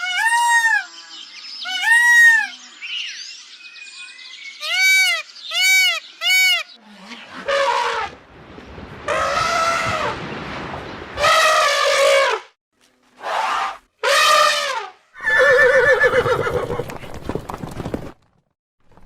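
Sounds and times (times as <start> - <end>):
horse whinny: 15.2 - 17.1.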